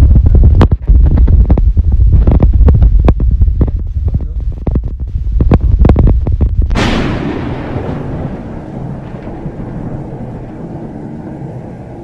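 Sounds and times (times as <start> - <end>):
deep boom with low rumble: 0.0 - 12.0
heavy low thumps: 0.0 - 12.0.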